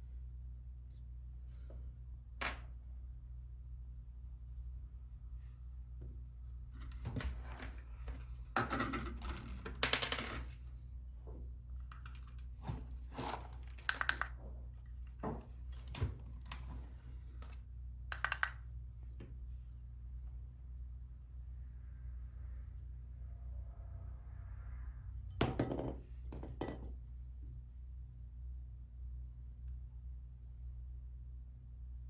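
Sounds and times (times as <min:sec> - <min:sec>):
steady low hum: 0:10.6 - 0:32.0
small parts and tools clicking: 0:11.8 - 0:14.4, 0:17.4 - 0:18.7.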